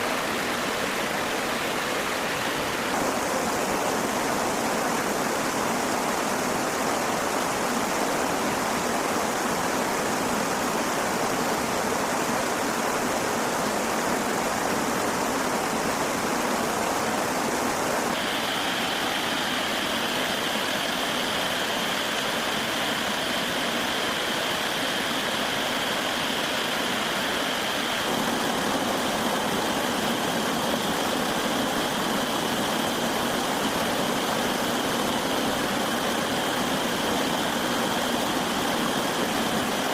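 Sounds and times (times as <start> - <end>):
steady rushing noise: 0.0 - 39.9
steady high-pitched tone: 18.2 - 39.9.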